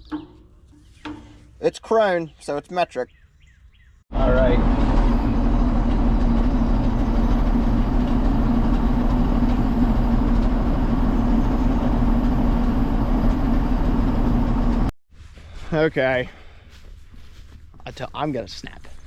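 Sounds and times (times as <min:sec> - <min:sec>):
tractor engine running: 0:04.1 - 0:14.9.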